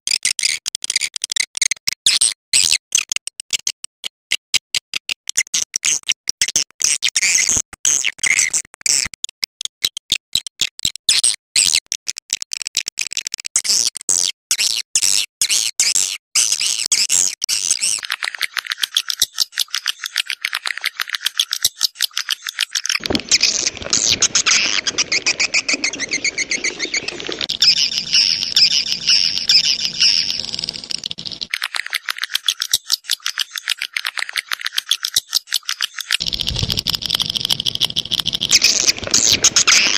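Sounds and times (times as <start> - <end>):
swiftlets twittering: 23.0 - 31.5, 36.2 - 39.9
low noisy rumble: 27.1 - 31.5, 36.2 - 39.6.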